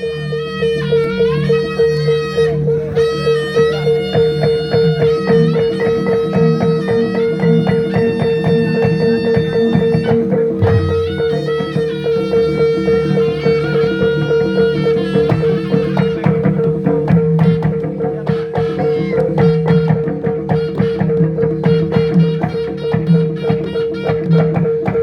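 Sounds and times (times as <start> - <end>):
steady held drone note: 0.0 - 19.4
reedy wind melody: 0.0 - 25.0
fast dense drumming: 5.1 - 25.0.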